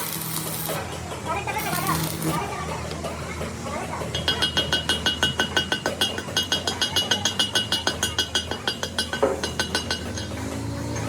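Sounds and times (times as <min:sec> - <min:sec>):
ringing hammer taps on steel: 0:04.1 - 0:10.4.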